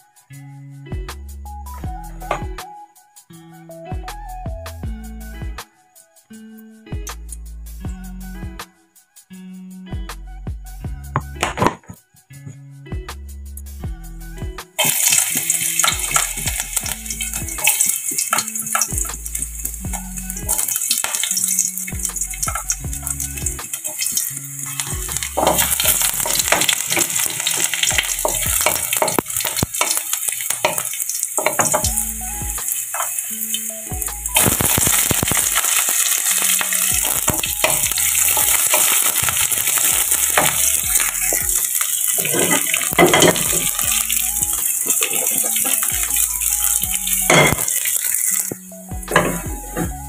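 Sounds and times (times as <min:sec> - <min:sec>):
onion and garlic sizzling in oil: 0:14.8 - 0:50.0.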